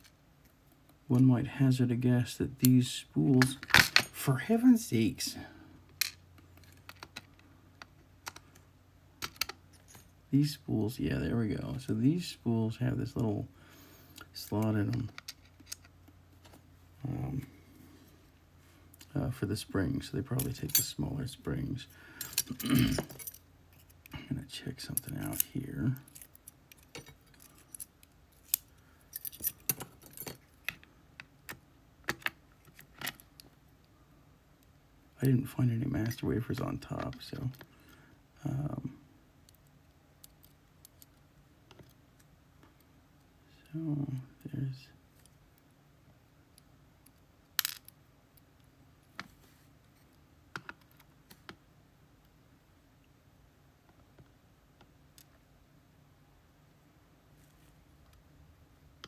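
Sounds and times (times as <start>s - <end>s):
small metal parts clicking: 14.1s - 15.9s, 47.0s - 48.0s.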